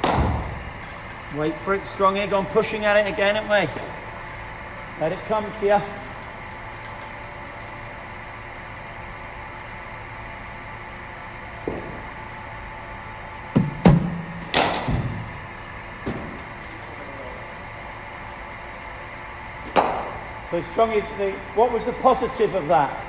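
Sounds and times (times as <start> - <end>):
bat striking cricket ball: 0.0 - 0.7, 13.6 - 15.2, 19.7 - 20.2
machine hum: 0.0 - 23.0.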